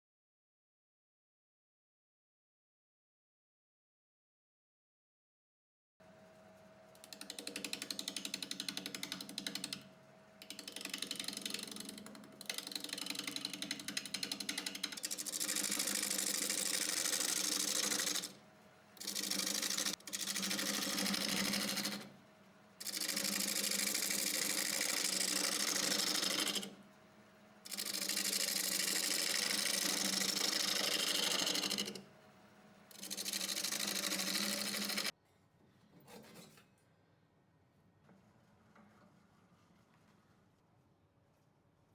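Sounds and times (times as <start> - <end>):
wood lathe humming: 6.1 - 22.2, 22.8 - 26.8, 27.6 - 35.1
tool rasping on spinning wood: 12.6 - 18.4, 22.8 - 26.8, 27.7 - 32.0, 32.9 - 35.1.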